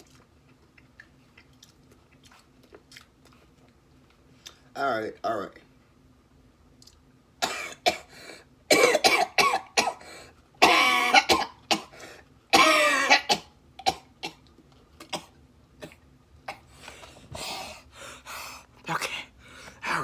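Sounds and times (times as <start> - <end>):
man coughing: 8.7 - 10.0, 10.6 - 11.9, 12.6 - 13.4.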